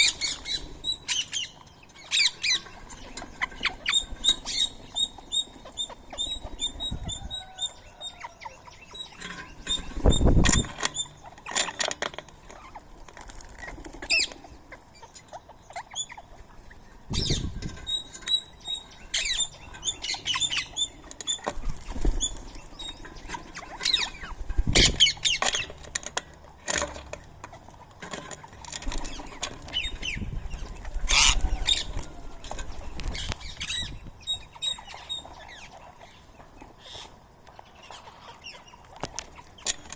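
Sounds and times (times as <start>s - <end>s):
parakeets chirping and squawking: 0.0s - 39.9s.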